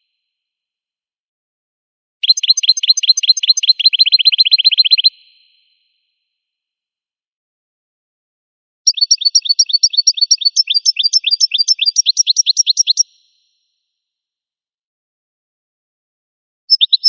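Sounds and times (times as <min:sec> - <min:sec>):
finch singing a trill: 0:02.2 - 0:05.1, 0:08.9 - 0:13.1, 0:16.7 - 0:17.0.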